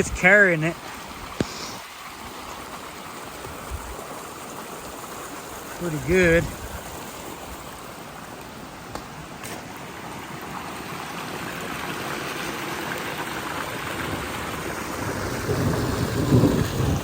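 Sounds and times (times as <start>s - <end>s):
steady rain: 0.0s - 17.0s
storm runoff flowing: 0.0s - 17.0s
low rumble of thunder: 15.0s - 17.0s.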